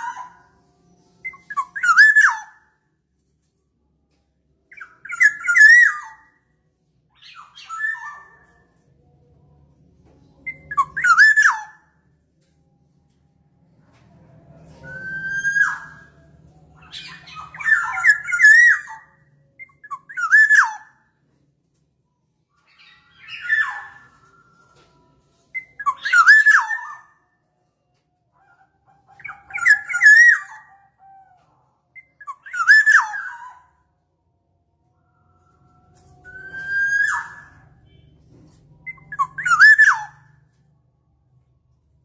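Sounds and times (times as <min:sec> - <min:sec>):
bird whistled calls: 0:01.2 - 0:02.6, 0:10.5 - 0:11.8, 0:14.8 - 0:16.1, 0:16.8 - 0:20.9, 0:22.7 - 0:24.4, 0:25.6 - 0:27.1, 0:29.1 - 0:30.7, 0:32.0 - 0:33.7, 0:36.2 - 0:38.0, 0:38.8 - 0:40.3.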